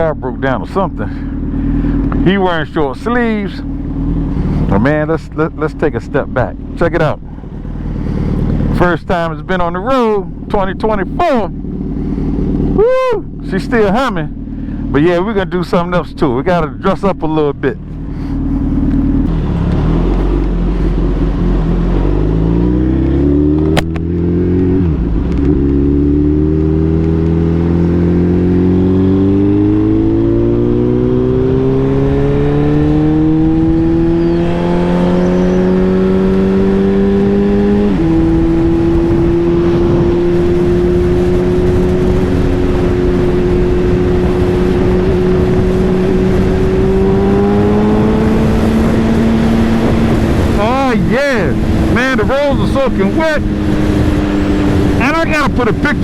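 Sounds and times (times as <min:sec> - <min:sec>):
motorcycle engine accelerating: 0:00.0 - 0:56.0
wind noise: 0:19.2 - 0:56.0.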